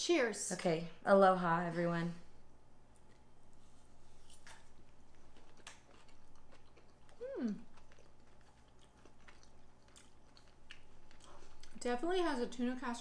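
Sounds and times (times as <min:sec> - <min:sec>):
people chewing soft food: 0:02.9 - 0:12.2
person humming mm: 0:07.2 - 0:07.7.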